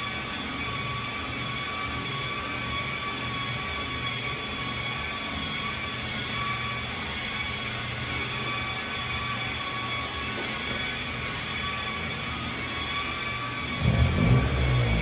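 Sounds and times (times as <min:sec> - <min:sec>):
high mechanical whines: 0:13.2 - 0:15.0
low mechanical rumble: 0:13.8 - 0:15.0.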